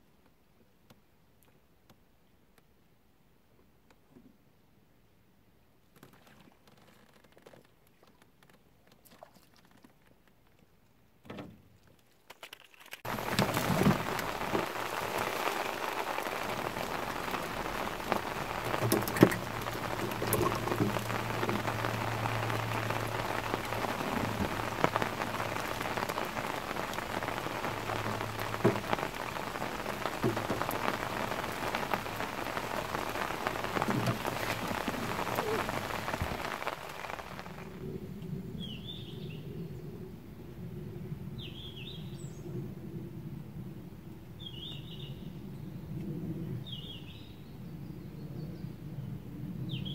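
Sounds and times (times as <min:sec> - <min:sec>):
heavy rain pattering: 0:12.3 - 0:39.6.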